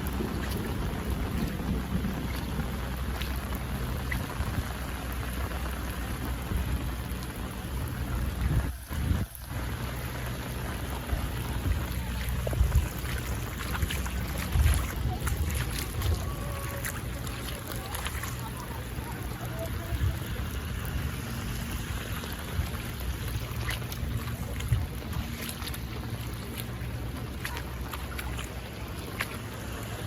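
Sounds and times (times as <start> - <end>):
low rumble: 0.0 - 30.0
rain: 0.0 - 30.0
wind: 0.0 - 30.0.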